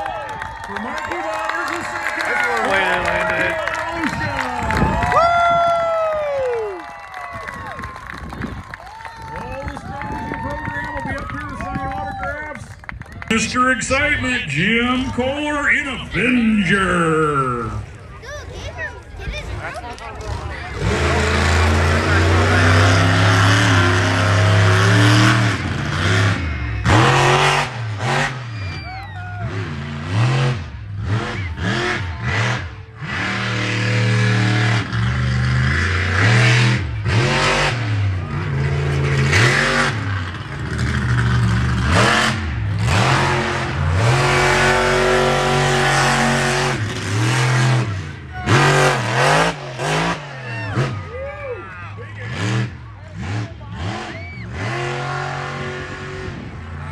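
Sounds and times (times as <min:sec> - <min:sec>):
monster truck engine revving: 0:00.7 - 0:10.4, 0:11.0 - 0:56.9.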